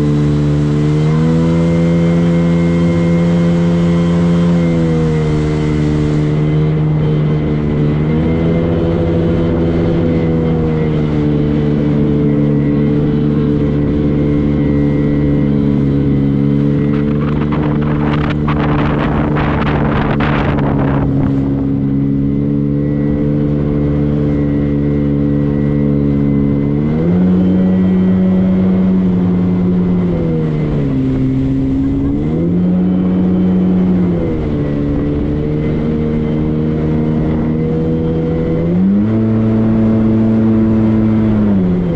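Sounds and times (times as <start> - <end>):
motorboat engine running: 0.0 - 41.9.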